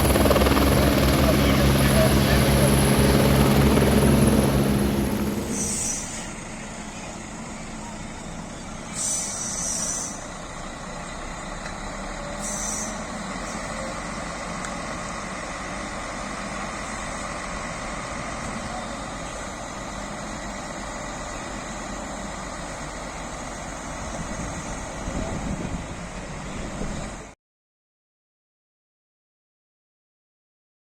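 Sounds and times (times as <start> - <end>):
heavy vehicle engines running: 0.0 - 27.4
air hisses: 5.5 - 6.3, 9.0 - 10.3, 12.4 - 13.0.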